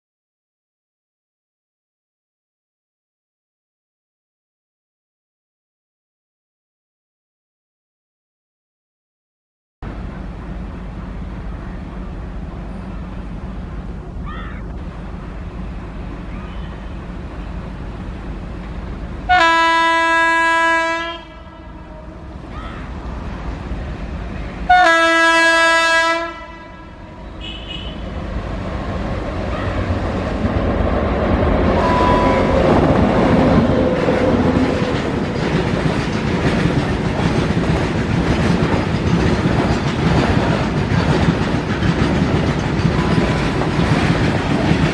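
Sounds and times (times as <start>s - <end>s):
locomotive rumble: 9.8s - 44.9s
train horn blasts: 19.3s - 22.5s, 24.6s - 28.2s, 31.7s - 32.8s
wheel and wagon noise: 27.4s - 44.9s.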